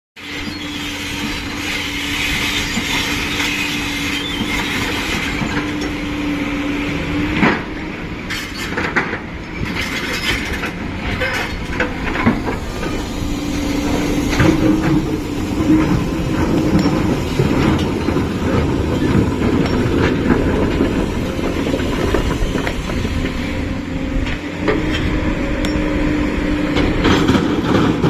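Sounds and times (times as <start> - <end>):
diesel engine humming: 0.2 - 8.4, 10.5 - 28.0
sharp metallic knocks and clanks: 13.8 - 23.5.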